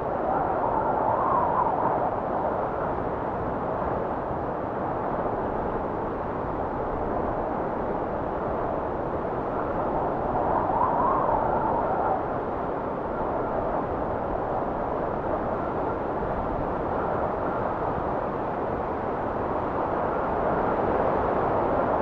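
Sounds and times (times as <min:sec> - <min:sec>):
blizzard wind rumbling: 0:00.0 - 0:22.0
wind gust whistling: 0:09.7 - 0:13.6.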